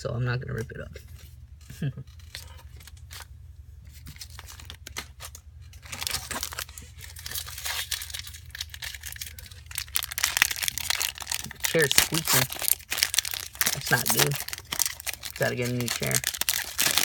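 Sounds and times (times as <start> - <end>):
low steady hum: 0.0 - 17.0
cards and packaging tearing: 4.0 - 17.0.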